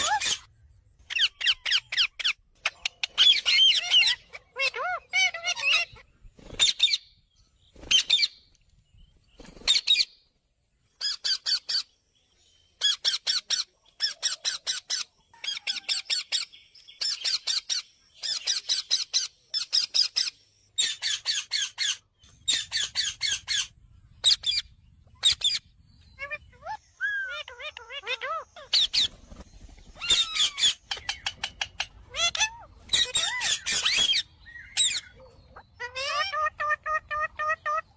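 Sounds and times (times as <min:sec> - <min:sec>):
parrot calling shrill notes: 0:00.0 - 0:00.5, 0:26.2 - 0:29.1, 0:32.0 - 0:35.2, 0:35.8 - 0:37.9.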